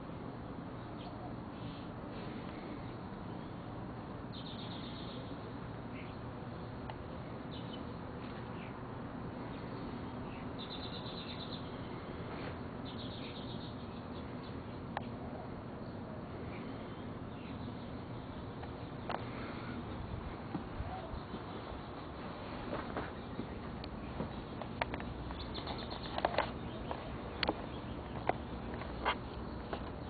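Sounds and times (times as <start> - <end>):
birds chirping: 0.0 - 30.0
low background noise: 0.0 - 30.0.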